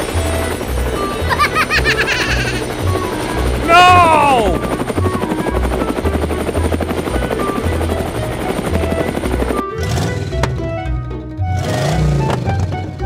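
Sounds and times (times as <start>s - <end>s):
cartoon helicopter rotor chopping: 0.0s - 10.9s
background music with beat: 4.7s - 13.0s.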